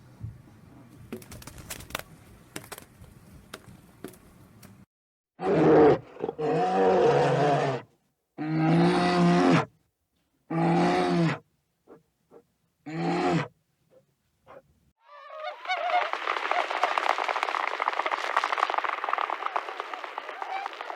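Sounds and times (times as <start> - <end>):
animal calling: 14.5 - 16.6.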